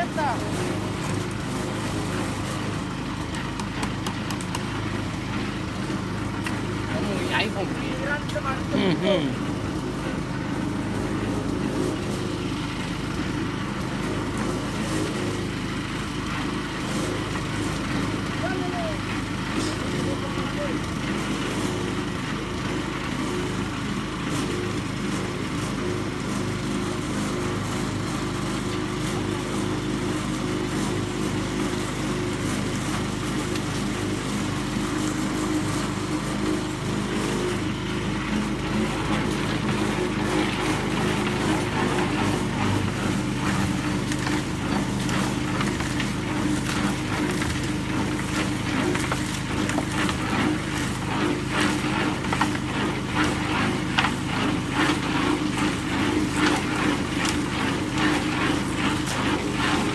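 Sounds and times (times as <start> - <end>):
vehicle engine humming: 0.0 - 14.0, 32.7 - 59.9.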